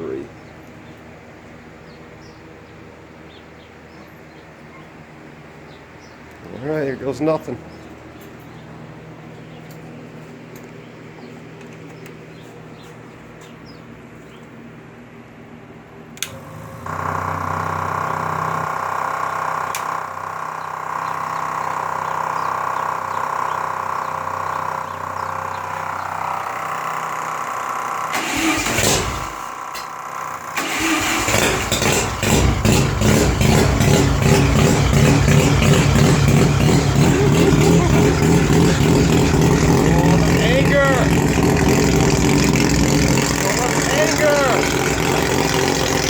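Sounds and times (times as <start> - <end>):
click: 16.2 - 16.4
engine starter whirring: 16.2 - 46.0
rotary engine running choppy: 30.0 - 46.0.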